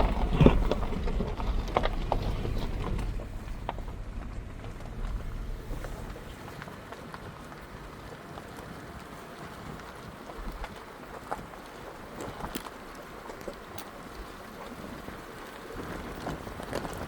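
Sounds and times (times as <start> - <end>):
wind buffeting microphone: 0.0 - 11.0
light clicks and crunches: 0.0 - 17.0.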